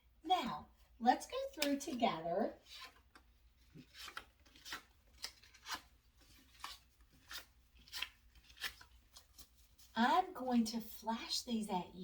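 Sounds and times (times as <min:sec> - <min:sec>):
paper cards rustling: 0:01.5 - 0:10.0.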